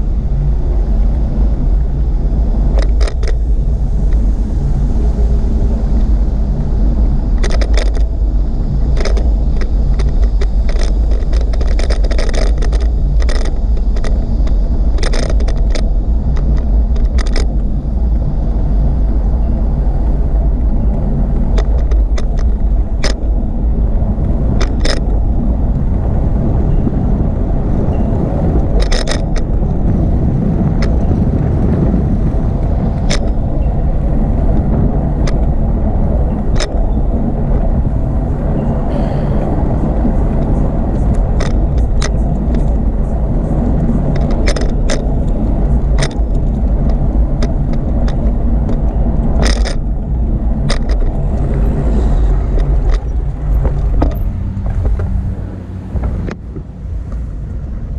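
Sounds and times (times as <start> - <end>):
sharp clicks and rattles: 0.0 - 5.0, 5.6 - 57.9
wind rumbling on microphone: 0.0 - 57.9.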